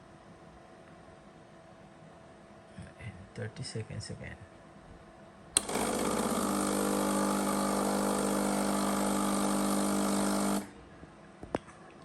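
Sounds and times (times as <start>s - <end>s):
pump switch click: 5.6s - 6.4s
water pump humming: 5.6s - 10.9s.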